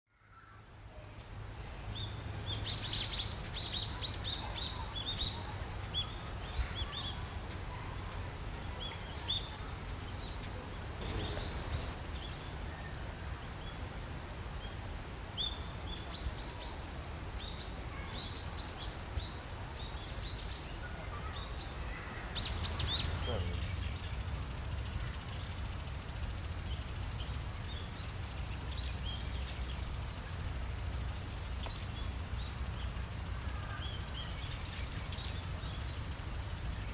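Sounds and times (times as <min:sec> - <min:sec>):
small birds chirping: 0:00.2 - 0:13.9, 0:14.5 - 0:36.9
steady low rumble: 0:09.8 - 0:12.7.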